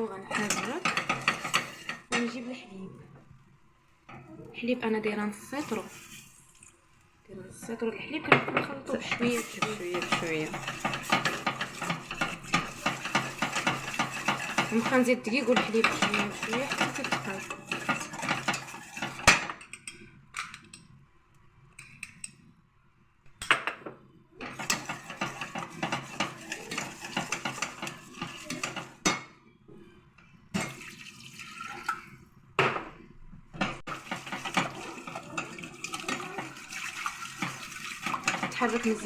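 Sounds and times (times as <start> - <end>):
spoon stirring in saucepan: 0.0 - 22.5, 24.4 - 39.0
utensil clinking against pot: 0.2 - 2.4, 8.4 - 20.9, 24.4 - 29.3, 33.6 - 39.0.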